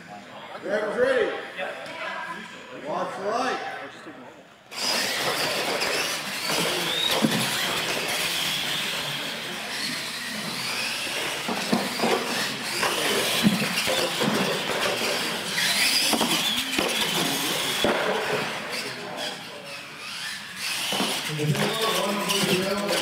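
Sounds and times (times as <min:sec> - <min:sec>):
electric motors and gears whining: 0:04.7 - 0:23.0.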